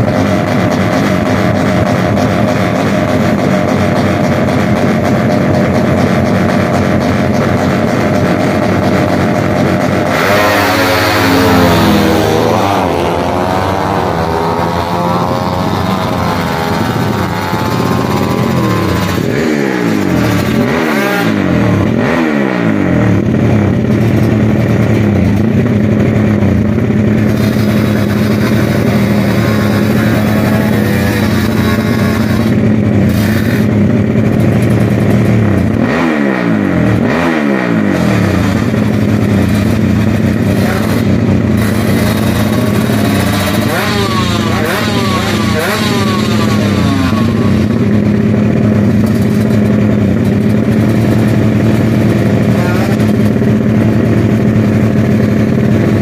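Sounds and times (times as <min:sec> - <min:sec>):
motorcycle engines idling: 0:00.0 - 0:56.0
motorcycles speeding away: 0:00.0 - 0:56.0
motorcycle throttle blips: 0:23.2 - 0:36.0.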